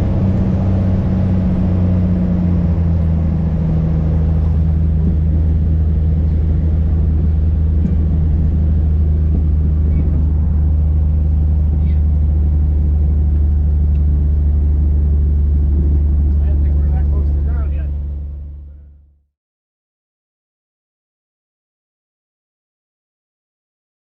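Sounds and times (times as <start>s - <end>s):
light aircraft engine droning: 0.0s - 19.2s.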